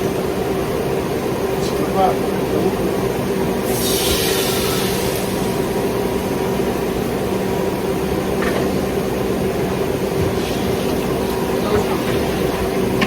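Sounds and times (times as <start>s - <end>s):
kitchen appliance motor hum: 7.6s - 13.0s.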